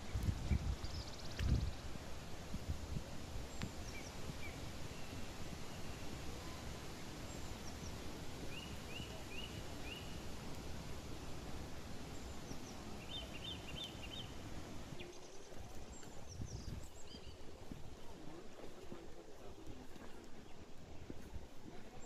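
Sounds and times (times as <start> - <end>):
low background noise: 0.0 - 22.0
forest birds calling: 3.5 - 10.4, 12.0 - 18.3.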